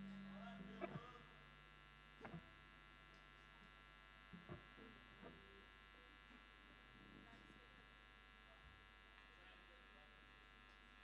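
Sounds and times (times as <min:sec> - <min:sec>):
electrical mains hum and buzz: 0:00.0 - 0:11.0
faint clicks and knocks: 0:02.2 - 0:05.5.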